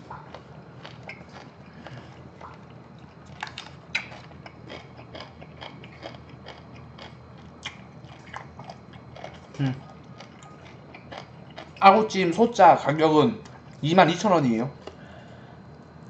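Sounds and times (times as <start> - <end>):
close chewing with wet crunches: 0.0 - 12.2.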